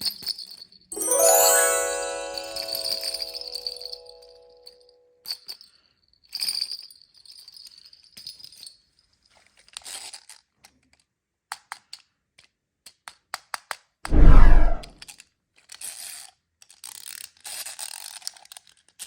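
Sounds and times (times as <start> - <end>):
rush of candies poured: 1.0 - 3.8.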